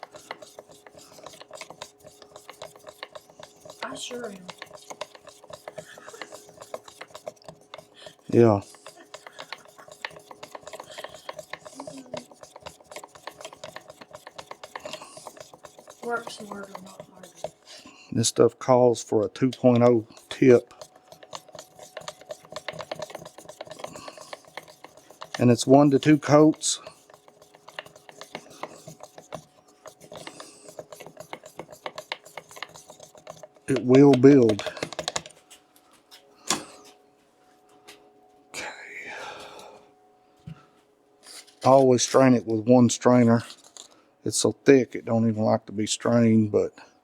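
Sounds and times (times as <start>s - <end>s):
stirring scraping clicks: 0.0s - 35.6s, 43.4s - 44.0s
faint steady hum: 0.0s - 47.0s.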